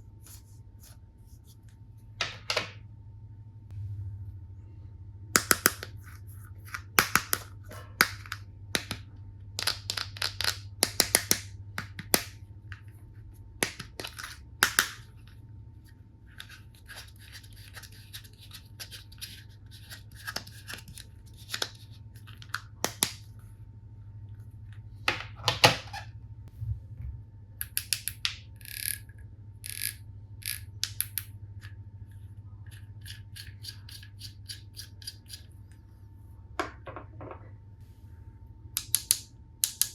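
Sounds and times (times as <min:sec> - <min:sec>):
plastic toy pieces clicking: 0:29.6 - 0:31.2.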